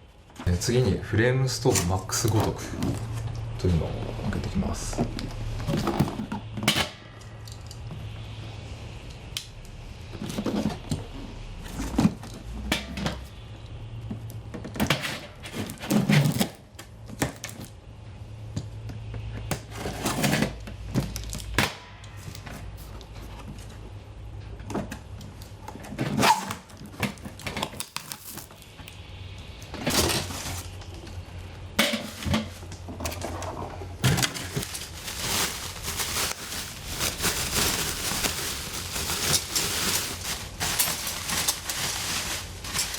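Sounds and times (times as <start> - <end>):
packaging rustling and crinkling: 26.8 - 28.7, 29.9 - 30.8, 32.1 - 42.9.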